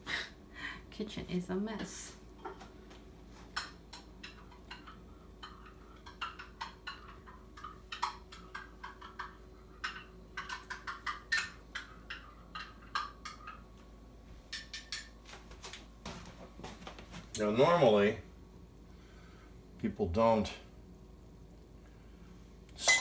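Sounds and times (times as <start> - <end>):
spoon clinking against cup: 22.8 - 23.0.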